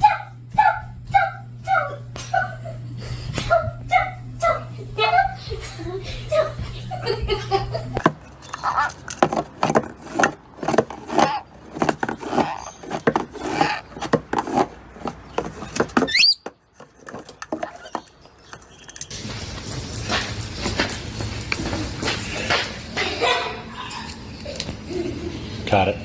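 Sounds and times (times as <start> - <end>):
birds squawking and chirping: 11.1 - 19.1.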